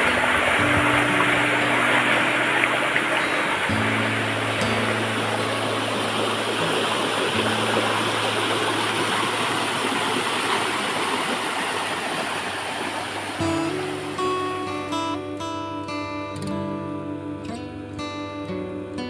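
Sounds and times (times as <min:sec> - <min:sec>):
low held tones: 0:00.0 - 0:15.1
flowing water rushing: 0:00.0 - 0:15.2.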